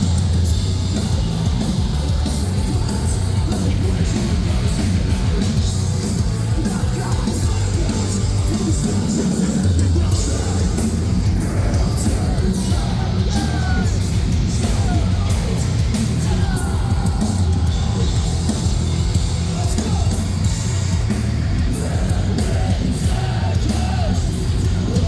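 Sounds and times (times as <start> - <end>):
metalcore band playing: 0.0 - 25.0
singer yelling: 6.6 - 20.6, 21.6 - 25.0.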